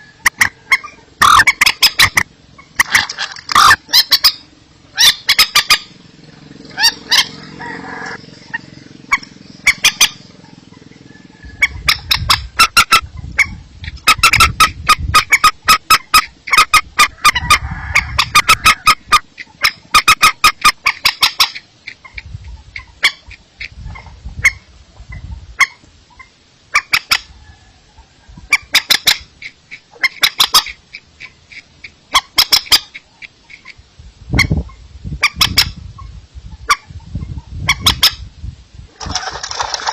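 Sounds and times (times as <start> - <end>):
bird sharp clicking calls: 0.2 - 4.4, 8.0 - 10.8, 19.4 - 23.8, 25.6 - 27.3, 28.6 - 33.8.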